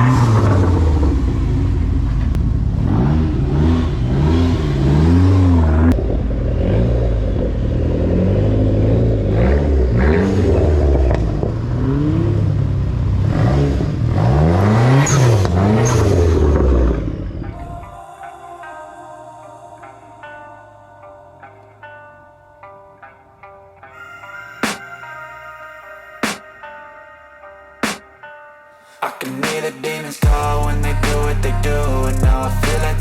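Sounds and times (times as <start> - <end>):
car engines revving hard: 0.0 - 17.4.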